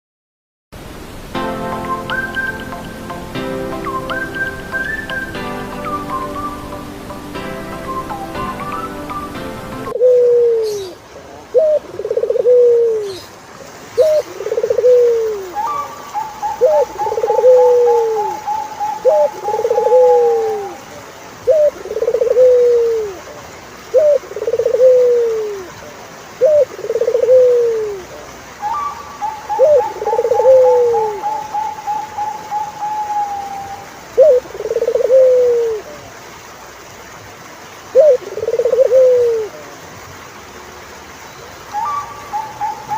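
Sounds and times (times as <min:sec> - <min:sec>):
turtledove cooing: 0:10.0 - 0:13.2, 0:14.0 - 0:15.8, 0:16.5 - 0:20.8, 0:21.5 - 0:23.2, 0:26.4 - 0:28.0, 0:29.2 - 0:35.9, 0:38.0 - 0:39.6.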